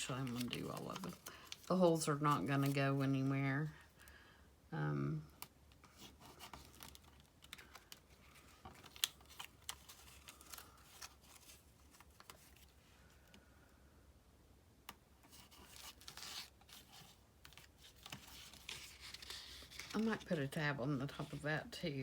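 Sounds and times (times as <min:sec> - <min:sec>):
paper rustling: 0:00.0 - 0:03.2, 0:05.8 - 0:12.8, 0:15.3 - 0:21.5.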